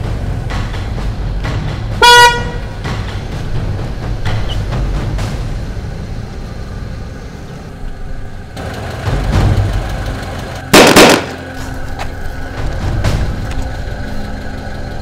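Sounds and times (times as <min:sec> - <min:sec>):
vehicle engine running: 0:00.0 - 0:15.0
sharp bangs: 0:10.7 - 0:11.7.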